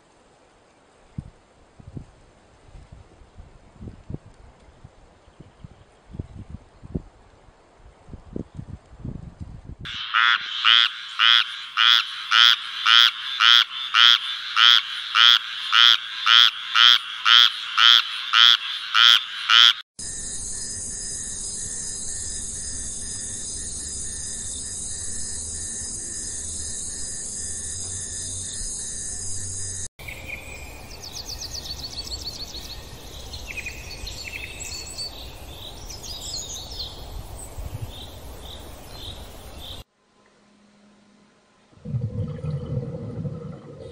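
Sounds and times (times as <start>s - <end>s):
chirping and trilling calls: 9.9s - 19.8s
frog croaking: 9.9s - 19.8s.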